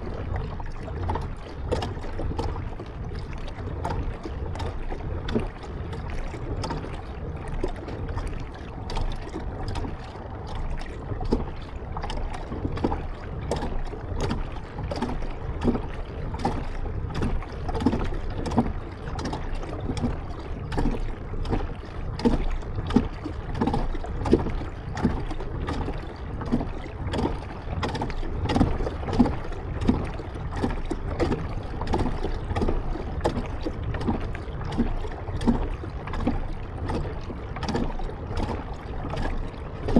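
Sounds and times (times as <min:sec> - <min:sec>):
paddle splashing water: 0:00.0 - 0:39.9.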